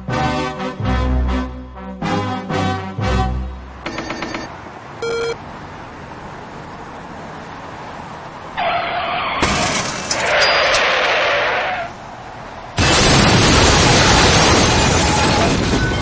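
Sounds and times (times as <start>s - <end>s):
steady road noise: 0.0s - 16.0s
short electronic beep: 3.9s - 5.4s
tyres screeching: 8.6s - 12.1s
car crash impact: 9.3s - 10.4s, 12.8s - 16.0s.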